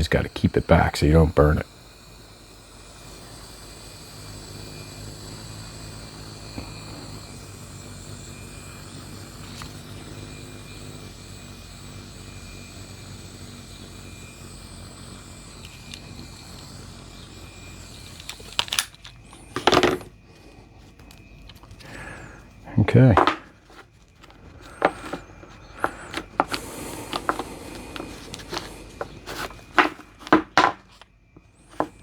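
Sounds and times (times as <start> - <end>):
hot-air blower running: 0.0 - 32.0.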